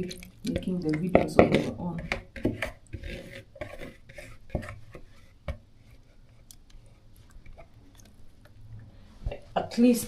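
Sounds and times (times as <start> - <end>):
rubbing and scraping: 1.2 - 7.7.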